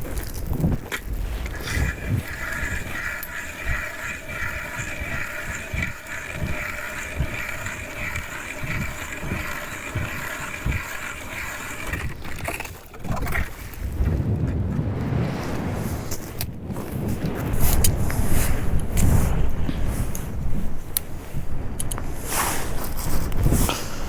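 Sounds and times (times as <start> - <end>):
wind buffeting microphone: 0.0 - 24.0
steady high whine: 1.3 - 12.3.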